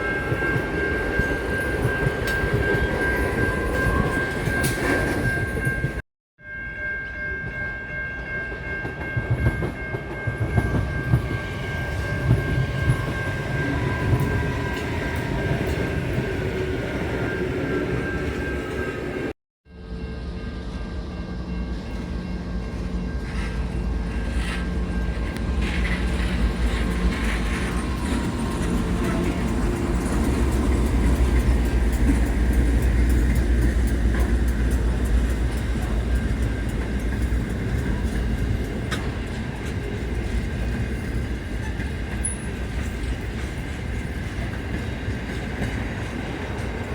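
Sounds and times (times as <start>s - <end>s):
train rumbling: 0.0s - 6.0s, 7.4s - 46.9s
rail clicks: 0.1s - 6.0s, 21.7s - 46.9s.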